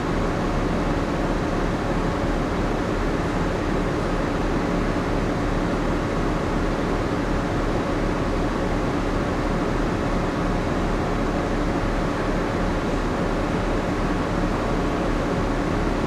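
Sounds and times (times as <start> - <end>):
machinery and ventilation hum: 0.0 - 16.0.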